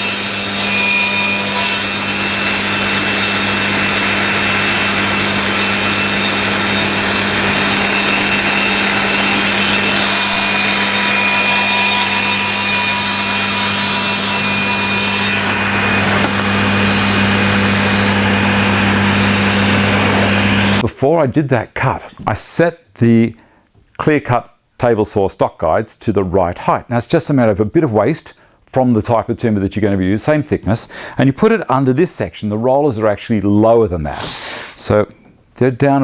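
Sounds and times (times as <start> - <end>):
saw blade ripping timber: 0.0 - 20.8
table saw motor hum: 0.0 - 20.8.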